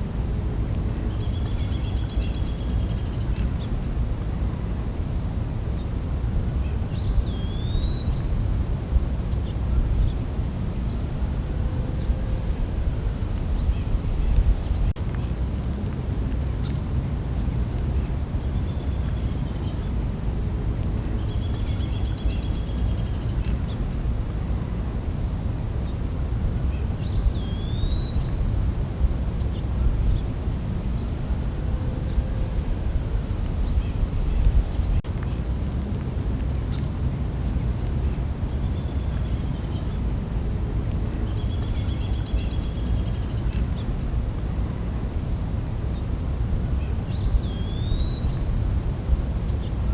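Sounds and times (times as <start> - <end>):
crickets droning: 0.0 - 49.9
steady low rumble: 6.3 - 16.0, 28.0 - 36.1.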